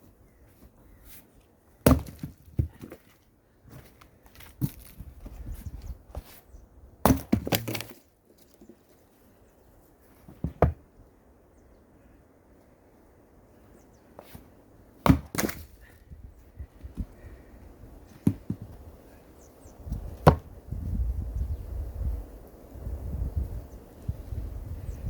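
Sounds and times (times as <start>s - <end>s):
wood splitting and splintering: 1.8s - 3.2s, 3.8s - 5.2s, 7.0s - 8.1s, 15.0s - 15.9s
axe splitting firewood: 1.8s - 5.5s, 7.0s - 8.6s, 10.2s - 10.8s, 15.0s - 16.0s, 18.0s - 18.8s, 20.0s - 20.5s.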